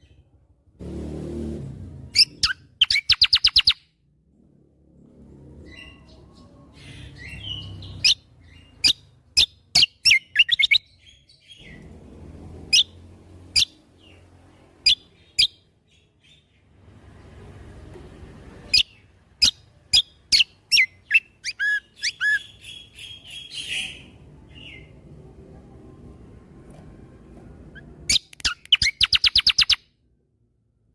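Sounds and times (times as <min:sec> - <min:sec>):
songbird piercing notes: 0:02.2 - 0:03.8, 0:06.9 - 0:11.8, 0:18.7 - 0:24.9, 0:27.8 - 0:29.8
faint low rumble: 0:03.9 - 0:09.4, 0:23.2 - 0:28.4.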